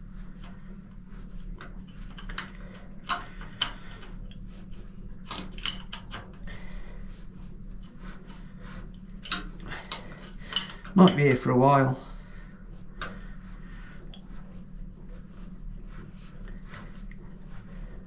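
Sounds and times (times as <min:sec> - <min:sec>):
steady low hum: 0:00.0 - 0:18.0
spanner clicking on metal: 0:02.0 - 0:04.2, 0:05.3 - 0:06.4, 0:09.2 - 0:11.3.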